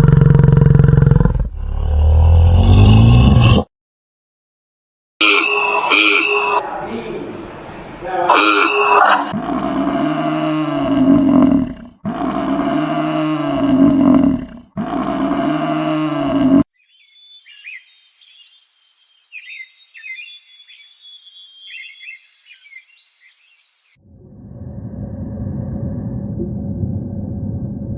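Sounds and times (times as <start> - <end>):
large animal bellowing: 0.0 - 3.6, 5.2 - 7.0, 8.3 - 16.7
faint high bird chirping: 16.7 - 24.0.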